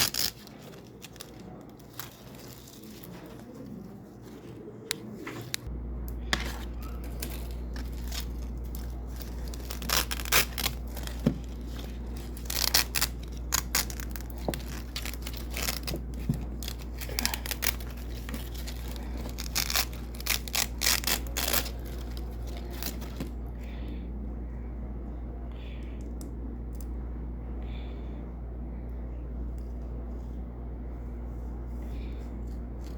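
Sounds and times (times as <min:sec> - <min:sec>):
hook-and-loop tape ripping: 0:00.0 - 0:03.4, 0:06.8 - 0:23.4
steady low hum: 0:00.0 - 0:32.9.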